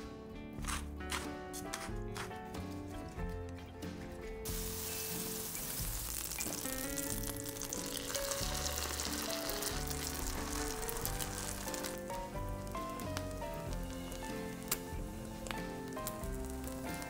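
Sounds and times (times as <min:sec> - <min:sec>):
butter sizzling in a skillet: 0:04.4 - 0:17.0
egg mixture frying: 0:04.4 - 0:17.0.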